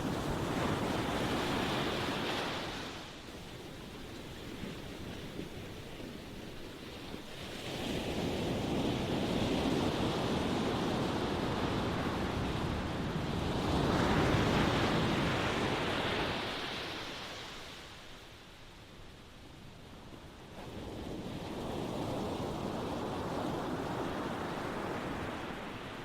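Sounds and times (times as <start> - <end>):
ocean waves breaking: 0.0 - 18.1.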